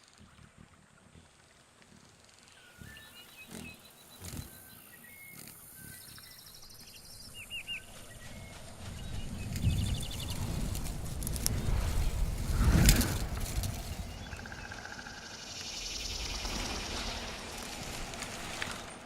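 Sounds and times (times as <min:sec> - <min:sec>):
low rumble: 0:08.0 - 0:18.8.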